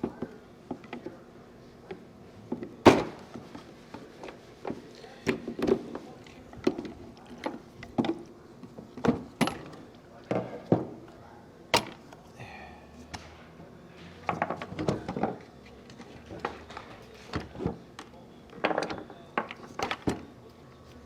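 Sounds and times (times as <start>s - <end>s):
tools clattering on metal parts: 9.0s - 10.6s.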